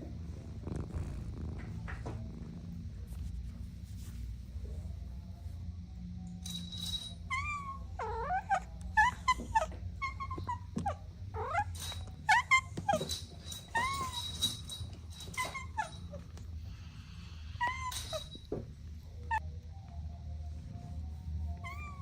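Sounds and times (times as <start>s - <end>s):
low steady rumble: 0.0s - 11.4s
kittens mewing: 7.3s - 14.5s, 15.2s - 18.5s.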